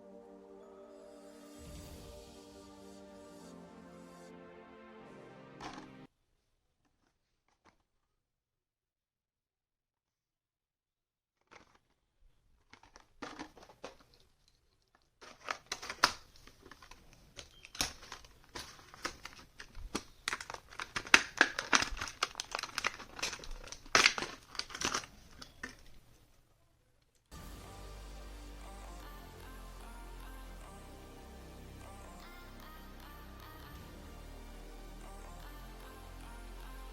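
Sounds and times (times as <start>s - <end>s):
packaging crinkling and tearing: 11.4s - 26.1s.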